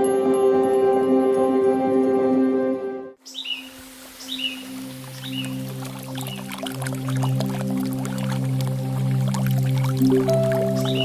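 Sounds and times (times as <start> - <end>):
bird chirping: 3.2 - 5.6, 10.3 - 11.0
faint low music drone: 4.9 - 11.0.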